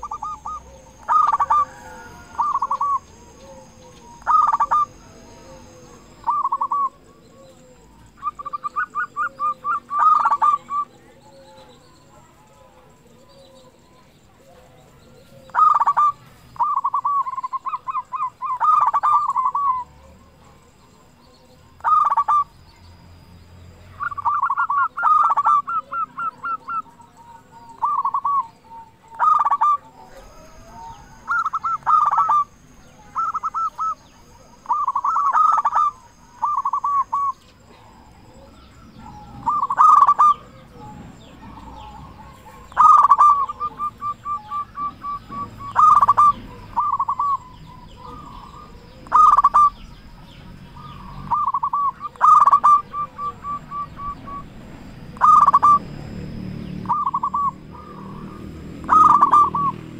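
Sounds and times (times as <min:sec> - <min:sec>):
dove cooing: 0:00.0 - 0:22.5, 0:23.7 - 0:59.9.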